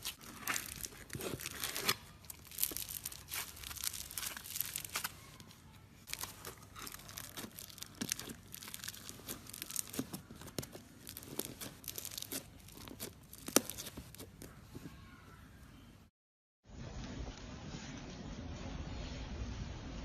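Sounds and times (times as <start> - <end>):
slime squishing and popping: 0.0 - 5.5, 6.1 - 14.6.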